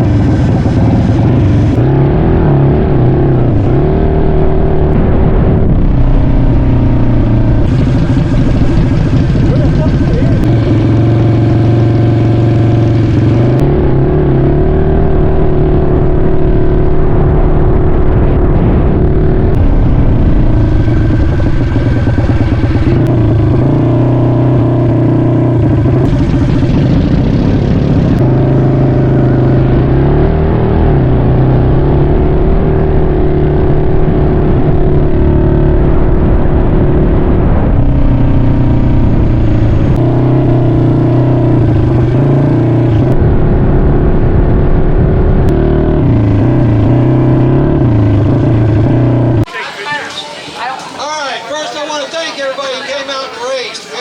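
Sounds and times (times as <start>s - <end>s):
mini bike engines revving: 6.1s - 16.4s, 19.5s - 33.4s, 45.5s - 54.0s.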